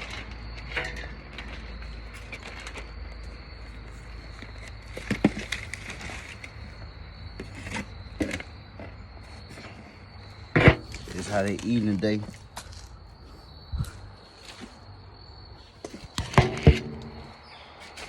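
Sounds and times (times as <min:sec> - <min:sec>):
insects droning: 0:00.0 - 0:18.0
short knocks and clatters: 0:16.2 - 0:17.4.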